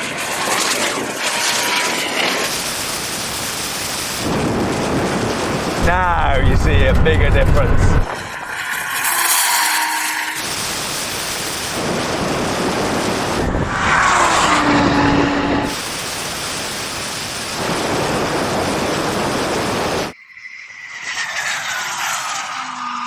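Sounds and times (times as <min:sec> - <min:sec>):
falling engine whine: 0:00.0 - 0:20.2
supercars roaring at speed: 0:11.8 - 0:15.8.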